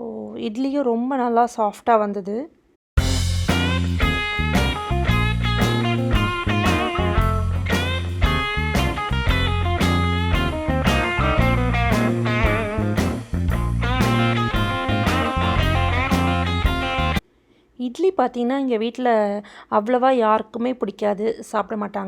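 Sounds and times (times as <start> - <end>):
bass line: 3.0 - 17.2
plucked guitar notes: 3.0 - 17.2.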